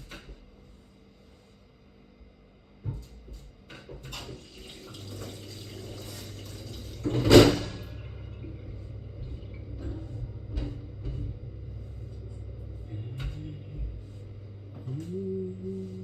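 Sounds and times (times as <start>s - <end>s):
water running: 4.1s - 11.2s
low steady hum: 4.9s - 16.0s.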